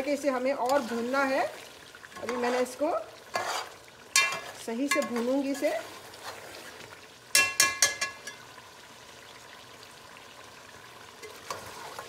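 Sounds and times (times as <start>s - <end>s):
meat sizzling in a pot: 0.0s - 12.0s
metal ladle knocking on pot: 4.2s - 5.2s, 7.3s - 8.4s.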